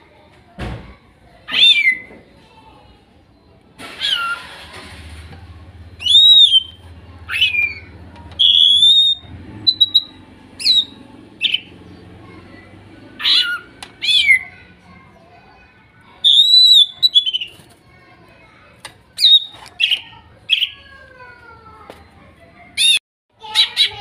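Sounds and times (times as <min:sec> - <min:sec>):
bird whistling calls: 0:05.9 - 0:11.7, 0:16.2 - 0:17.6, 0:19.2 - 0:20.8.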